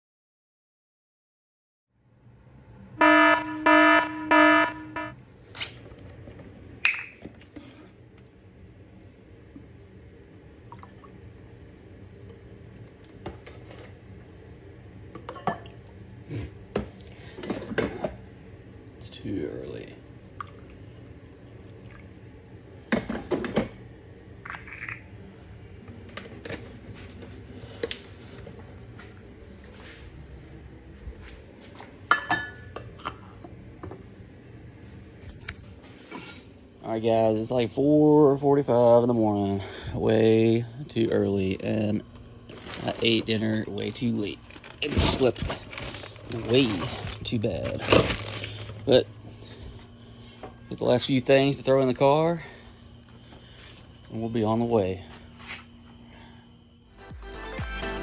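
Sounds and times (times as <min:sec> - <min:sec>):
alarm beeping: 0:03.0 - 0:05.2, 0:36.8 - 0:57.6.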